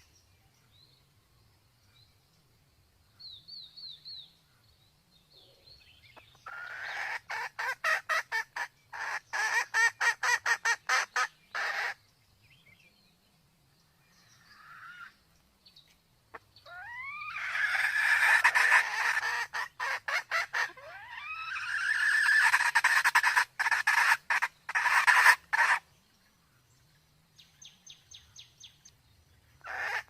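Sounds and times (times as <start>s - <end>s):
hen chirps: 6.1s - 12.0s, 16.3s - 25.9s, 29.6s - 30.0s
hen cackling clucks: 6.2s - 12.0s, 16.3s - 25.8s, 29.6s - 30.0s.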